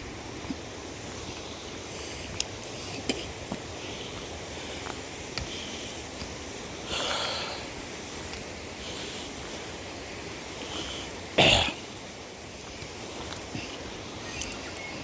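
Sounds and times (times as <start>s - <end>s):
faint outdoor hiss: 0.0s - 15.0s
person coughing: 11.4s - 11.8s.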